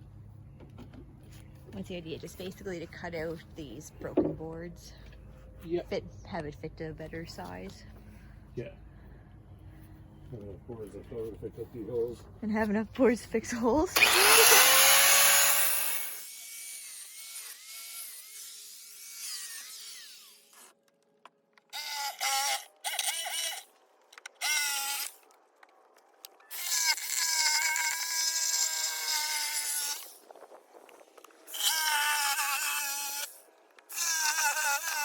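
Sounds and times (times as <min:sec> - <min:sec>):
power saw cutting wood: 0:13.1 - 0:20.8, 0:21.7 - 0:25.2, 0:26.5 - 0:30.3, 0:31.2 - 0:35.0.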